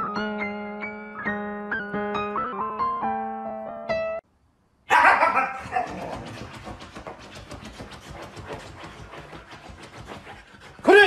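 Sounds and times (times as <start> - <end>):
dog scratching fabric cushion: 5.6 - 11.0.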